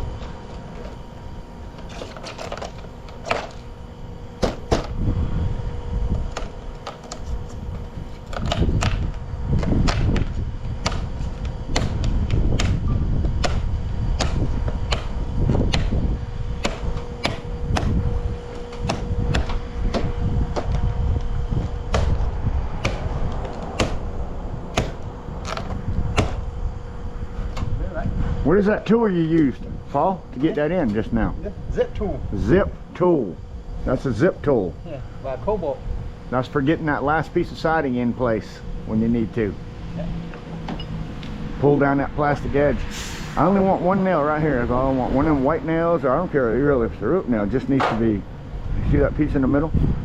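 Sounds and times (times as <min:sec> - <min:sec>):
low rumble: 0:03.8 - 0:06.7, 0:07.3 - 0:30.4
vinyl siding clicking and snapping: 0:06.3 - 0:07.6, 0:08.2 - 0:12.8.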